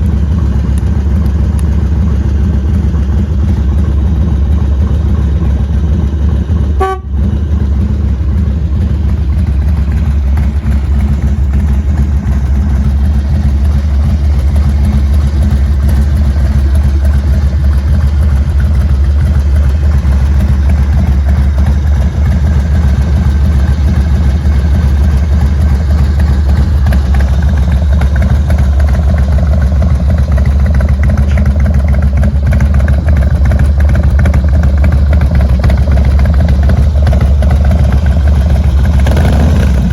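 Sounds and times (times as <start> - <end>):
motorcycle engine running: 0.0 - 39.9
short tone: 6.8 - 7.4.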